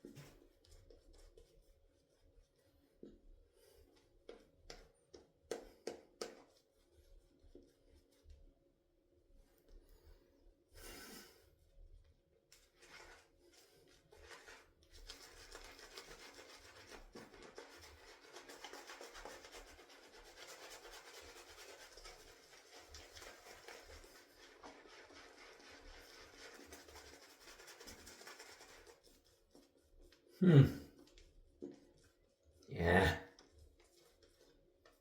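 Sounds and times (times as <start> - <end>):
shaving brush rubbing lather: 12.7 - 30.3.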